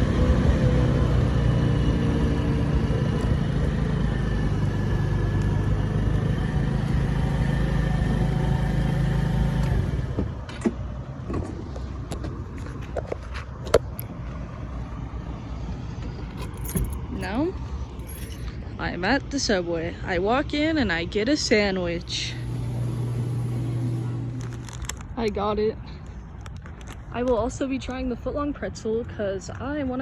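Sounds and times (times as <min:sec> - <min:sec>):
moped engine running: 0:00.0 - 0:10.4.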